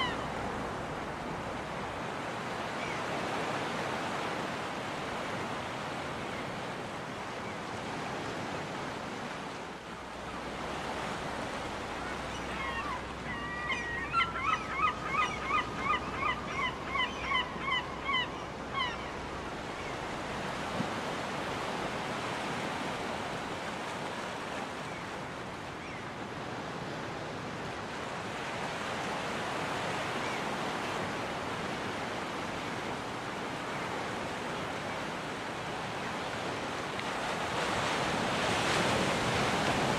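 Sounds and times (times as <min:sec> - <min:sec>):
gull rising calls: 0:00.0 - 0:00.4, 0:12.0 - 0:19.3
surf washing on a beach: 0:00.0 - 0:39.9.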